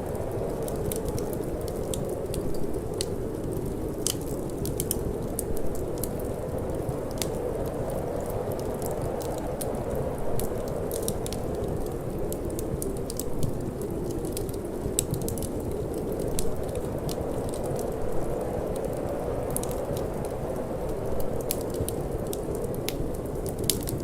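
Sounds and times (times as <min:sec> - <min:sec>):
low rush of wind: 0:00.0 - 0:24.0
wood fire crackling: 0:00.0 - 0:24.0.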